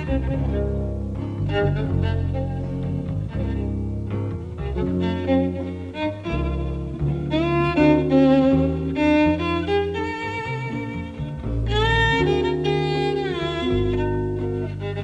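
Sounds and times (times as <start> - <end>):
double bass: 0.0 - 15.0
jazz violin melody: 0.0 - 15.0.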